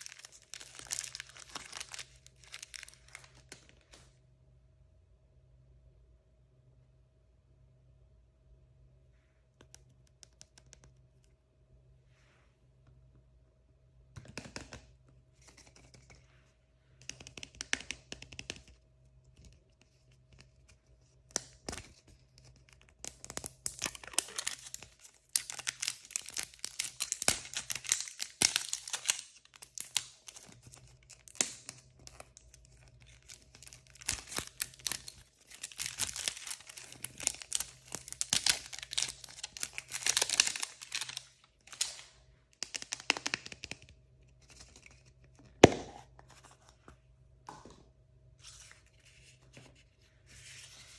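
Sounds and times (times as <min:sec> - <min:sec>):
plastic wrappers tearing and crinkling: 0:00.0 - 0:03.6, 0:23.6 - 0:42.0.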